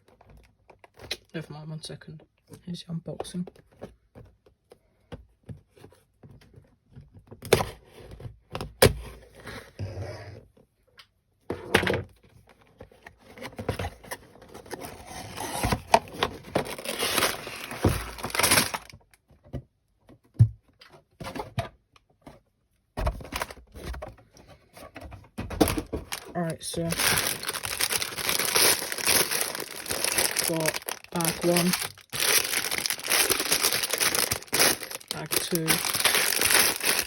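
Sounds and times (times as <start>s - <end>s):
cardboard rustling and tearing: 13.1s - 19.1s, 25.6s - 37.0s.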